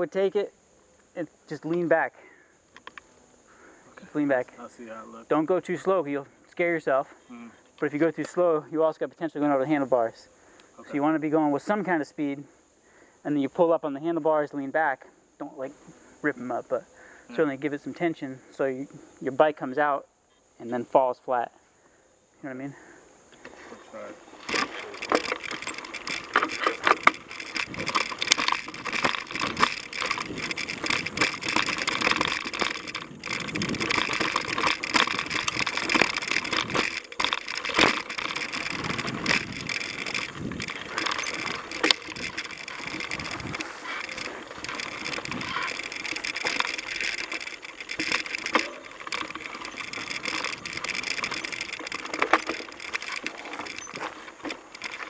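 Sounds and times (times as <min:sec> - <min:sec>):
bike tyres on dirt trail: 0:22.7 - 0:55.0
bike rattling over bumps: 0:23.4 - 0:55.0.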